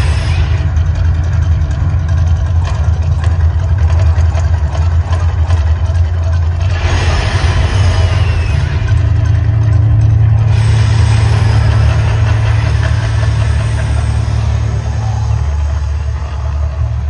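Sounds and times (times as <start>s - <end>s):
loud hissing rush: 0.0s - 0.9s, 6.6s - 17.0s
deep rumble: 0.0s - 17.0s.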